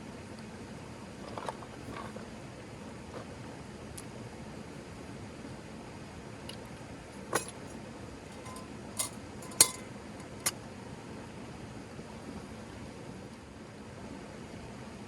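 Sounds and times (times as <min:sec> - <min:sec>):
glass or metal clinks: 0:08.4 - 0:10.5.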